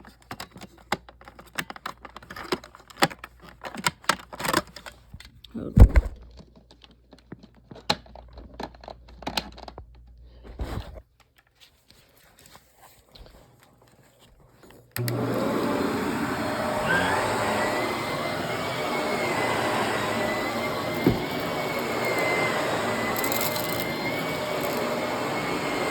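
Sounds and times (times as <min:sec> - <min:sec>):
vacuum cleaner running: 0:15.0 - 0:25.9
faint suction whistle: 0:16.6 - 0:18.2.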